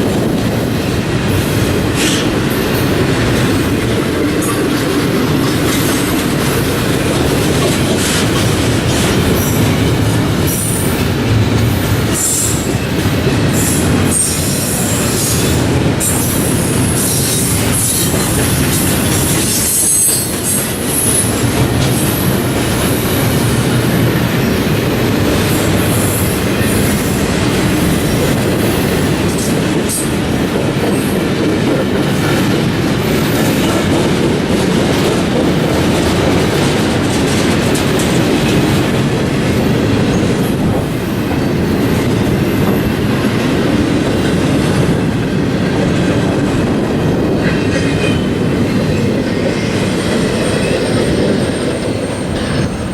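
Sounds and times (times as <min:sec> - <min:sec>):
train wheels rumbling on rail: 0:00.0 - 0:52.9
high wheel squeal: 0:19.1 - 0:21.4.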